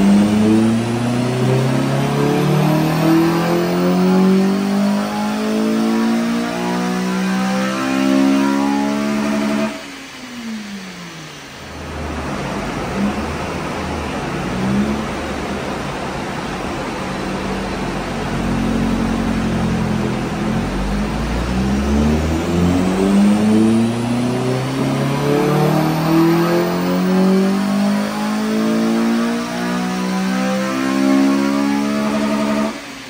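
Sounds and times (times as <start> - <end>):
car engine revving on dyno: 0.0 - 33.0
steady rushing noise: 9.5 - 26.9.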